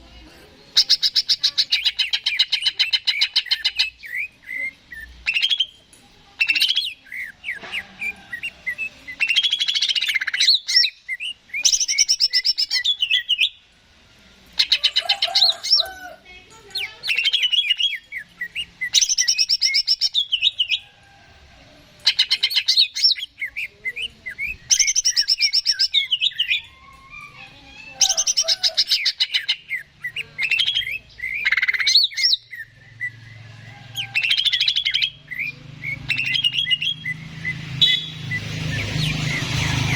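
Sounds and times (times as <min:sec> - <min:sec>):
bird singing chattering whistles: 0:00.8 - 0:05.8, 0:08.4 - 0:13.6, 0:17.0 - 0:20.8, 0:22.1 - 0:27.4, 0:28.0 - 0:33.3, 0:34.0 - 0:39.8.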